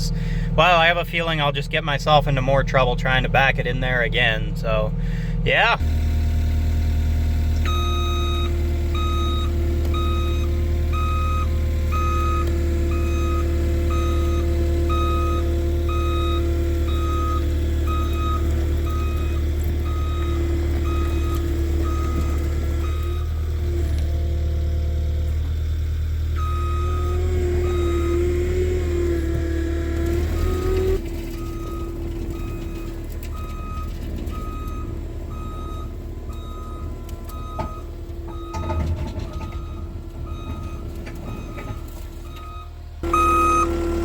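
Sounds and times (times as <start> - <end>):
skid steer engine running: 0.0 - 44.0
back-up alarm beeping: 7.6 - 23.4, 26.4 - 29.5, 30.2 - 44.0.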